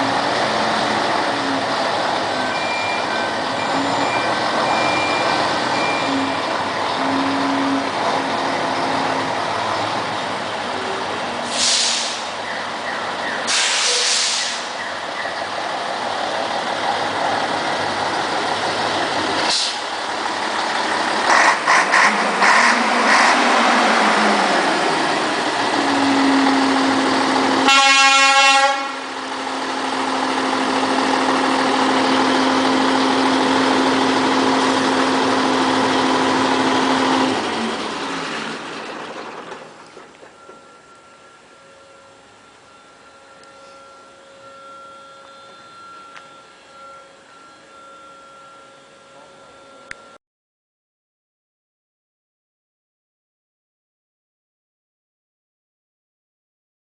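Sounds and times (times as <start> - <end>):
truck diesel engine running: 0.0 - 50.2
truck horn: 2.4 - 9.3, 25.6 - 29.2
air hisses: 11.4 - 12.4, 13.5 - 14.8, 19.5 - 19.9
steady low tone: 40.3 - 50.2.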